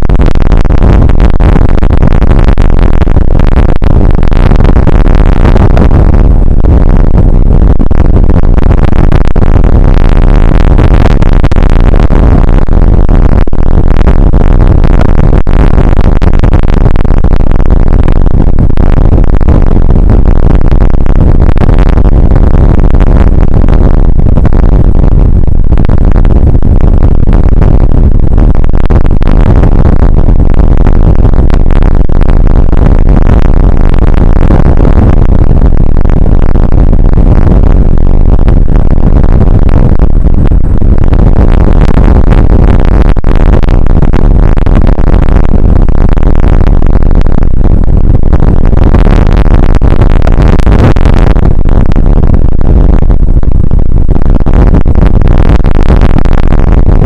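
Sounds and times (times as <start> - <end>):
rain and wind on microphone: 0.0 - 53.0.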